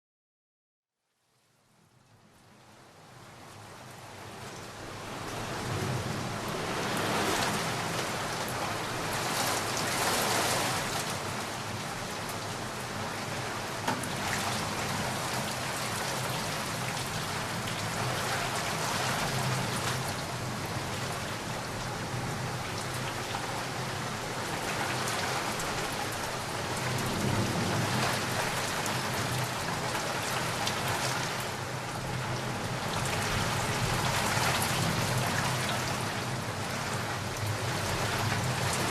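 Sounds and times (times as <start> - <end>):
heavy rain pattering: 2.0 - 38.9
distant thunder rolls: 26.8 - 29.7.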